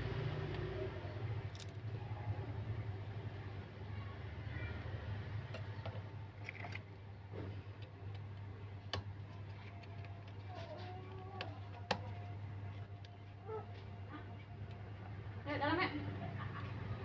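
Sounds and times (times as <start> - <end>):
tools and phone parts clicking: 1.5 - 1.8.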